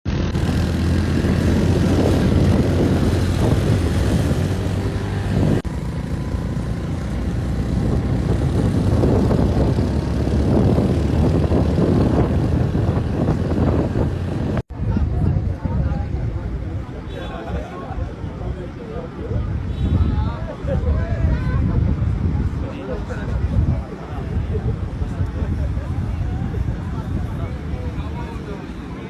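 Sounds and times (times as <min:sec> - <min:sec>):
motorbike engine rumbling: 0:00.1 - 0:17.2.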